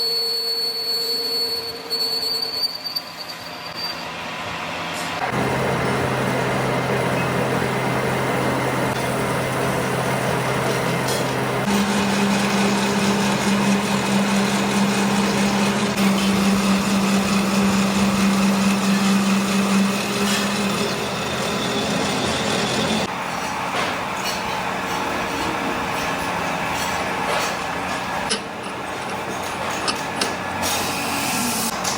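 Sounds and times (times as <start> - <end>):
metal-working noise: 0.1 - 31.9
machine motor hum: 5.2 - 23.2.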